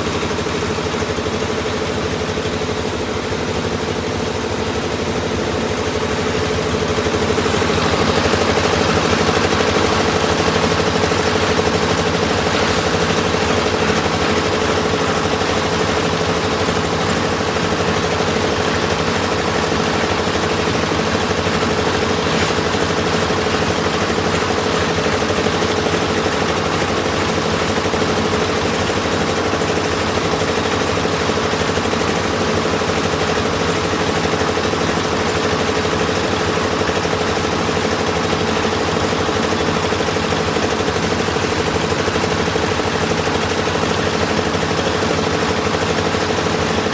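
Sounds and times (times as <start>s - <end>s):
piling machine engine pulsing: 2.4s - 31.2s.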